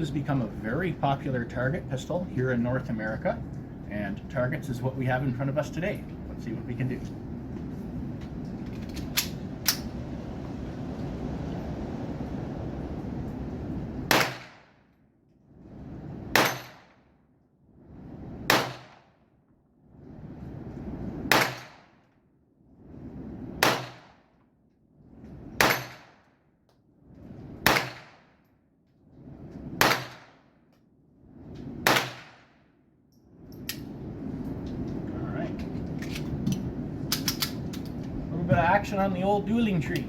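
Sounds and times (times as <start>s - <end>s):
pistol shots: 14.1s - 14.7s, 16.3s - 17.0s, 18.5s - 19.0s, 21.3s - 21.9s, 23.6s - 24.1s, 25.6s - 26.2s, 27.6s - 28.3s, 29.8s - 30.4s, 31.8s - 32.5s.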